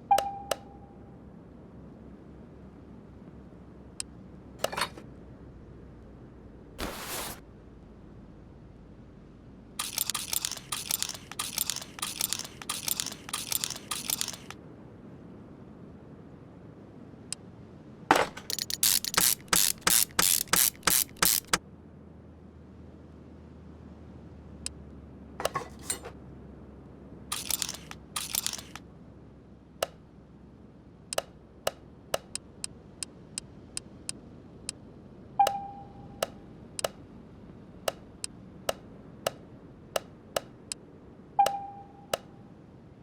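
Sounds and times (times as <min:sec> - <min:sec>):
sharp clicks: 0:09.8 - 0:14.6, 0:18.4 - 0:21.6, 0:27.3 - 0:28.8, 0:31.2 - 0:32.4, 0:36.2 - 0:37.0.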